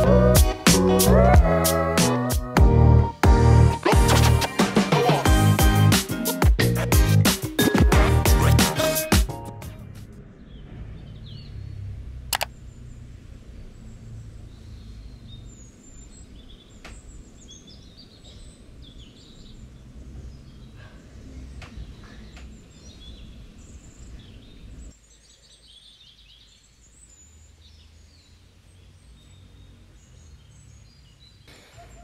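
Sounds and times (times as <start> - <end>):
birds chirping: 10.2 - 32.0.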